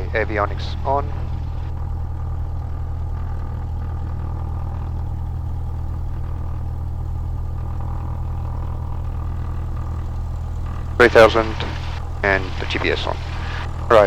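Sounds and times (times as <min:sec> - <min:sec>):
propeller plane engine idling: 0:00.0 - 0:14.0.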